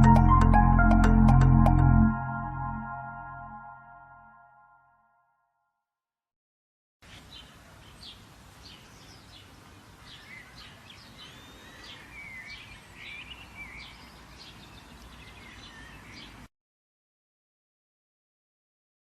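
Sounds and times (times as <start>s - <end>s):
low outdoor background noise: 7.0s - 16.5s
songbirds chirping and warbling: 7.0s - 16.5s.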